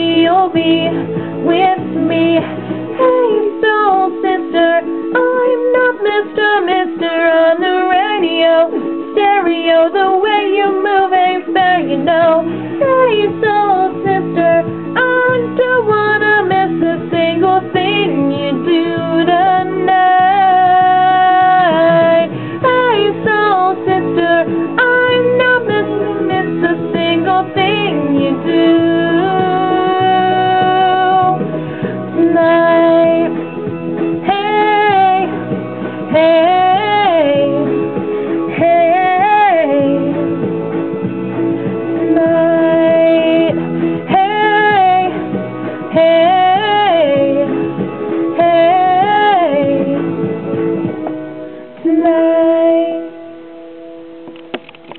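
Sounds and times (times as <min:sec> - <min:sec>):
guitar: 0:00.0 - 0:54.9.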